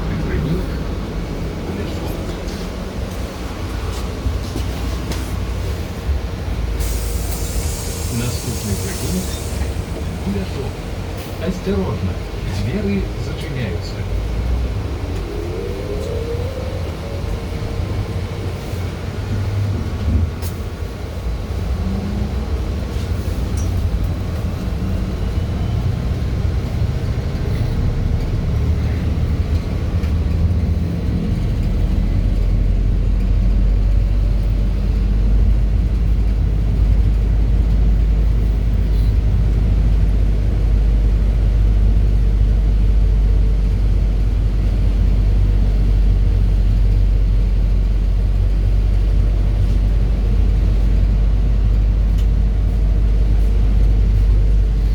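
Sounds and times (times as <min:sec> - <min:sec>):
road rumble: 0:00.0 - 0:54.9
electric drive whine: 0:14.3 - 0:18.9.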